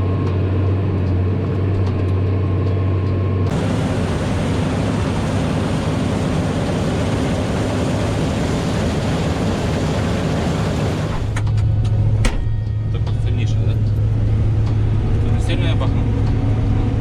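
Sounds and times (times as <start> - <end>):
heavy machinery engine running: 3.5 - 11.4
rushing mechanical noise: 3.5 - 11.4.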